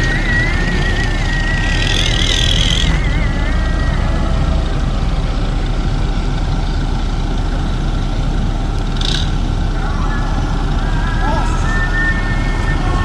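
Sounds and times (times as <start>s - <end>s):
thin wavering high tone: 0.0s - 5.8s, 9.8s - 13.0s
truck engine rumbling: 0.0s - 13.0s.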